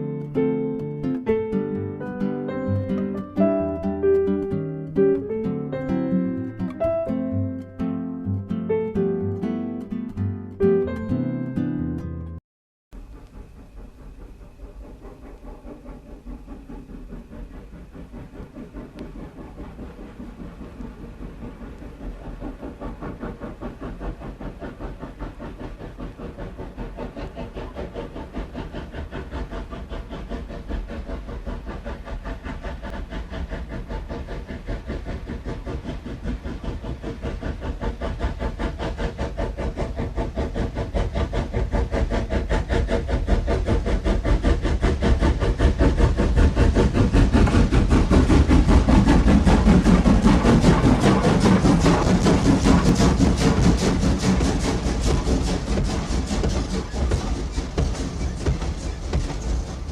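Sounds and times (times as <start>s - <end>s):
steam locomotive running: 0.0s - 11.1s, 13.0s - 59.9s.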